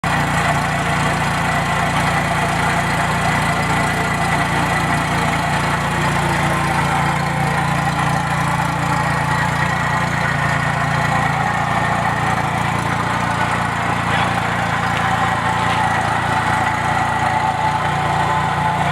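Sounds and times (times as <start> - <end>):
snowmobile engine idling: 0.0 - 18.9.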